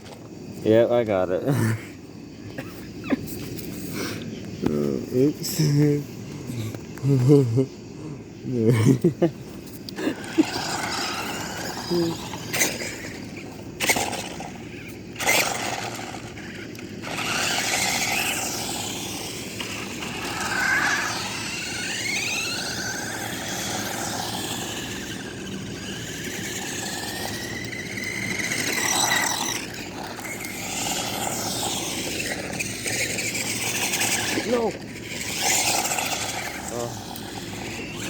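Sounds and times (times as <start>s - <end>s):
wheels hissing on road: 9.3s - 38.0s
toy car electric motors whining: 9.4s - 38.0s.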